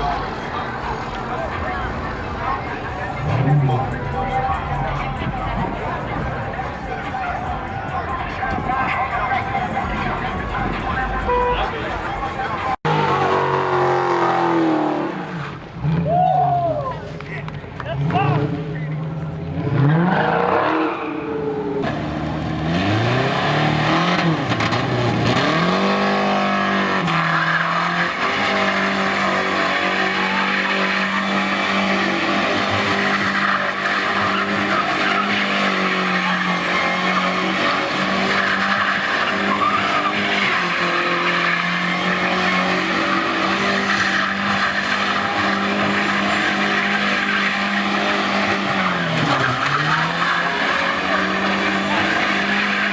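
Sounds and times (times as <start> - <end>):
tires squealing on pavement: 0.0 - 52.9
truck engine revving: 17.2 - 52.9.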